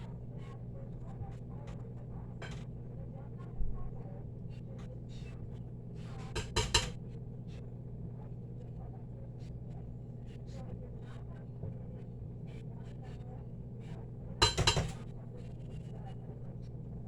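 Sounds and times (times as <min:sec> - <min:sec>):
dish clatter: 0:06.4 - 0:06.9, 0:14.4 - 0:15.0.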